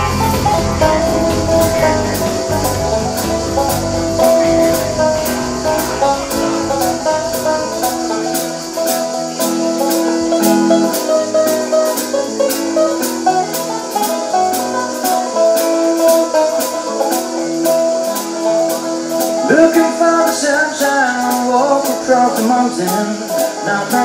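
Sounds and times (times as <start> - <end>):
guitars playing chords: 0.0 - 24.0
steady drum beat: 0.0 - 24.0.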